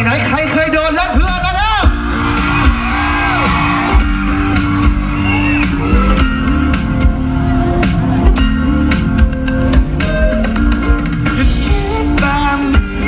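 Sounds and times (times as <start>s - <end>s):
drums: 0.0s - 13.0s
audience shouting: 1.0s - 8.6s.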